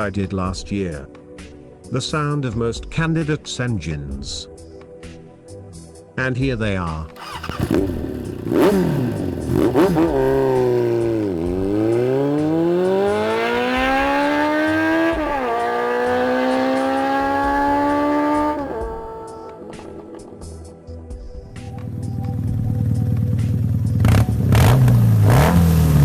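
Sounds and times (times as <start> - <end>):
motorcycle engine revving: 7.2 - 20.8, 21.4 - 26.0.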